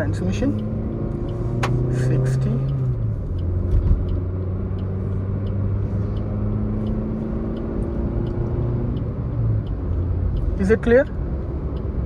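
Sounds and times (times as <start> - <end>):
car engine running in gear: 0.0 - 12.0
tyre and road noise: 0.0 - 12.0.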